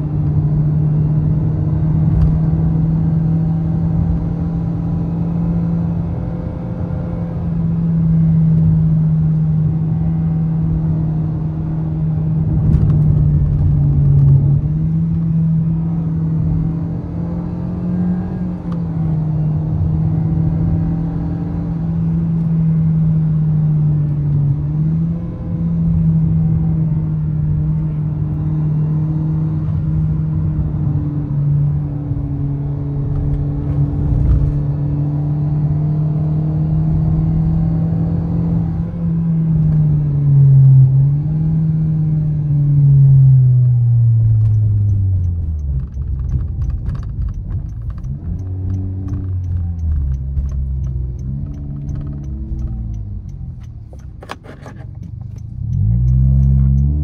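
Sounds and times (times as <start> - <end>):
car engine droning: 0.0 - 57.0
road and tyre noise: 0.0 - 57.0.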